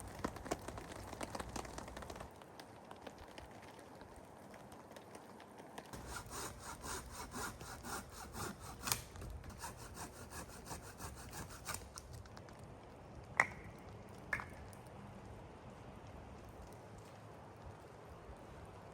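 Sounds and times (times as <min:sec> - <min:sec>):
hand saw cutting wood: 0:06.0 - 0:12.1.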